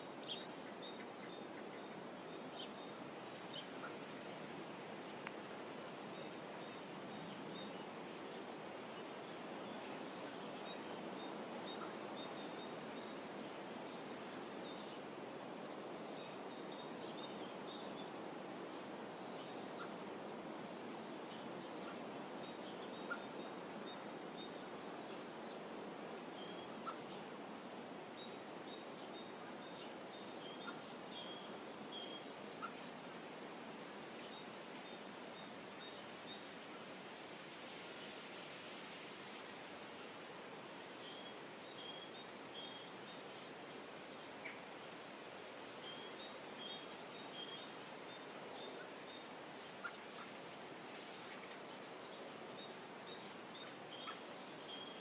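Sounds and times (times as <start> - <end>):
soft outdoor hiss: 0.0 - 55.0
faint ticks: 5.2 - 5.4.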